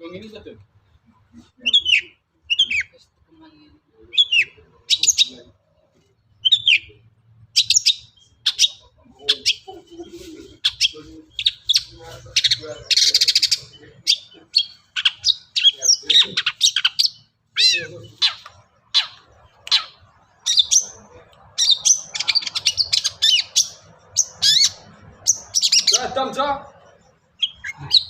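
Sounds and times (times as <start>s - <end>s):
bird chirps and whistled notes: 6.4s - 6.9s.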